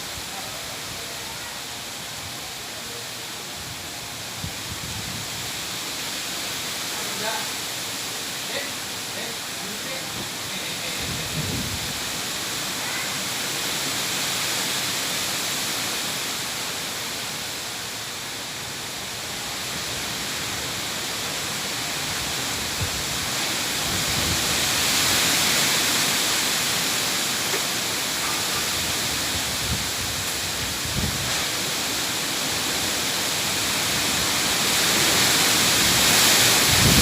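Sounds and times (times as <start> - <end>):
wind buffeting microphone: 11.0 - 12.1, 28.6 - 31.5, 35.8 - 37.0
strong wind rushing: 11.0 - 12.2, 28.7 - 31.5, 35.1 - 37.0.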